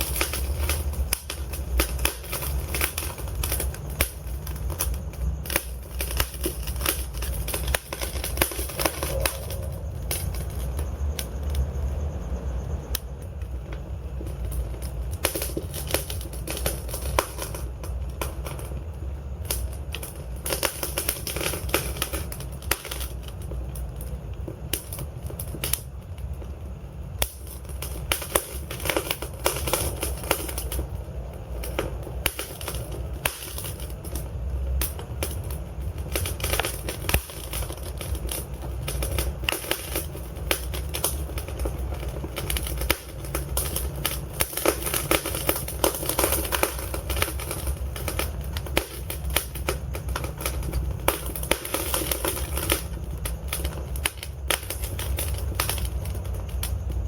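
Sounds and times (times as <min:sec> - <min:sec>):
low rumble of flames: 0:00.0 - 0:57.0
wood fire crackling: 0:00.0 - 0:57.0.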